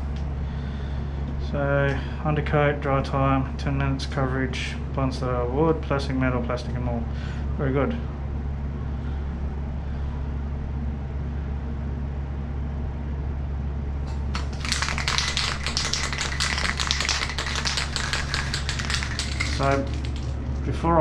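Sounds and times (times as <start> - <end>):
spray can rattling: 14.1 - 20.7.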